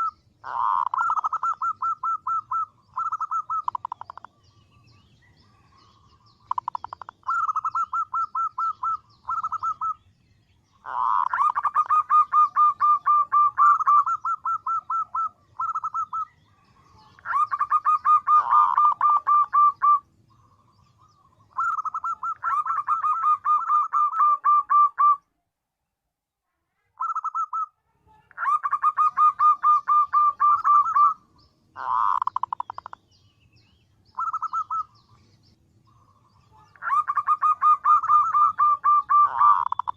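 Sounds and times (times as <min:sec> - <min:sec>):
dove cooing: 0:00.0 - 0:04.3, 0:06.5 - 0:10.0, 0:10.8 - 0:25.2, 0:28.4 - 0:31.2, 0:31.8 - 0:33.0, 0:34.1 - 0:35.0, 0:35.9 - 0:39.9.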